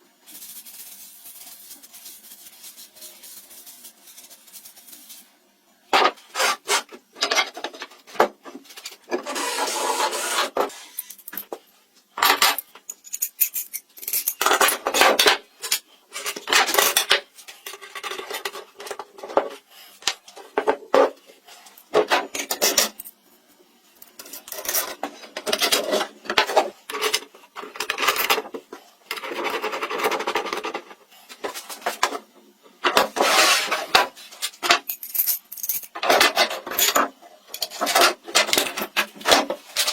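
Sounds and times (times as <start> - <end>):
rasping and scraping wood: 6.3 - 7.0.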